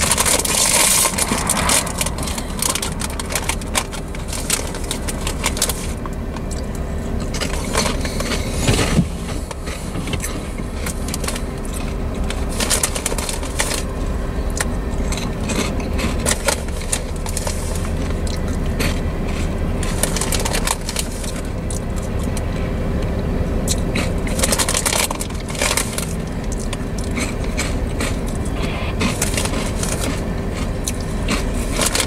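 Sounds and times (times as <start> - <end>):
steel wheels rumbling on rail: 0.0 - 6.2.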